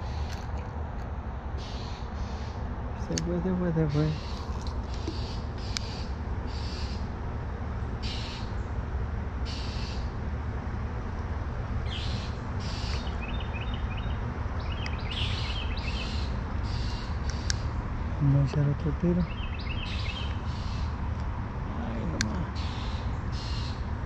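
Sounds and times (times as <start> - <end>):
birds making buzzy calls: 0.0 - 0.6, 1.5 - 24.0
thin bird chirps: 11.9 - 17.7, 19.2 - 21.0.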